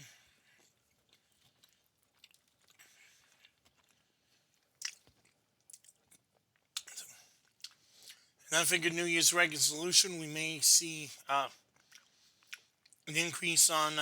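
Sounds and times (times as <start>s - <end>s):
man chewing food: 0.1s - 8.4s, 11.5s - 13.1s.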